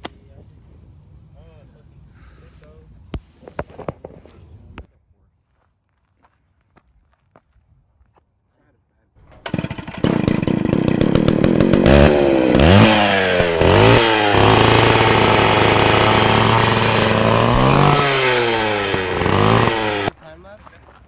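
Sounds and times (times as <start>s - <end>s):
engine starting and revving: 9.3s - 20.1s.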